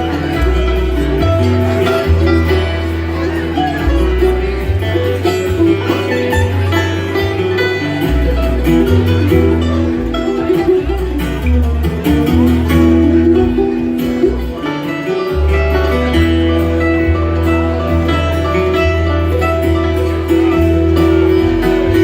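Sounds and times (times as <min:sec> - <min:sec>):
acoustic guitar picking: 0:00.0 - 0:22.0
bass line: 0:00.0 - 0:22.0.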